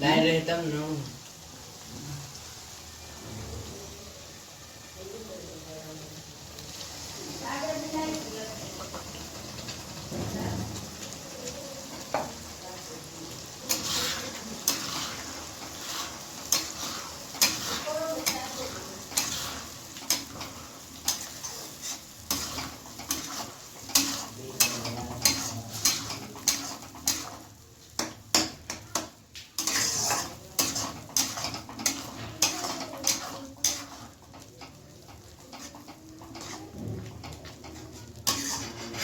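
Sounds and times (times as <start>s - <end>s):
faint sizzle: 0.0s - 39.0s
metal spoon scraping cooking pot: 13.7s - 39.0s.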